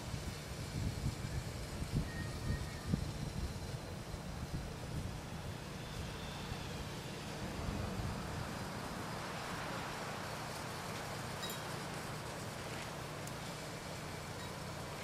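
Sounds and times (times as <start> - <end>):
microwave oven humming: 0.0 - 9.2
soft hiss: 0.0 - 15.0.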